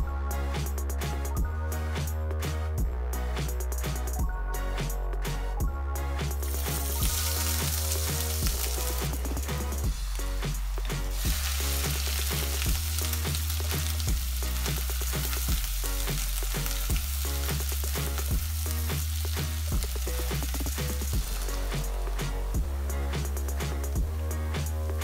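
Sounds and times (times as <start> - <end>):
background music with bass: 0.0 - 25.0
oil sizzling in a pan: 6.4 - 25.0.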